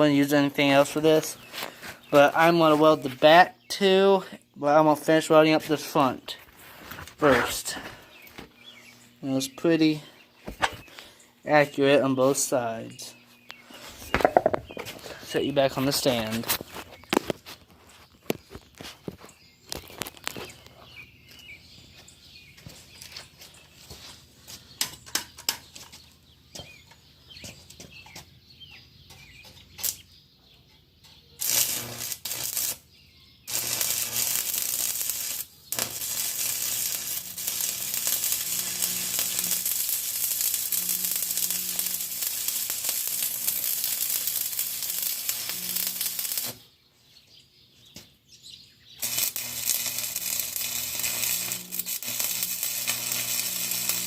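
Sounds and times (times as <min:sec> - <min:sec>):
welding arc crackling: 0:00.0 - 0:01.4, 0:31.4 - 0:32.9, 0:33.5 - 0:46.6, 0:49.0 - 0:54.0.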